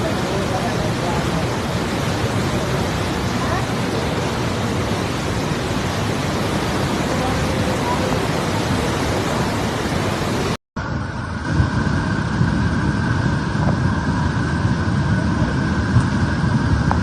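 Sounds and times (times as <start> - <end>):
floodwater rushing: 0.0 - 10.6.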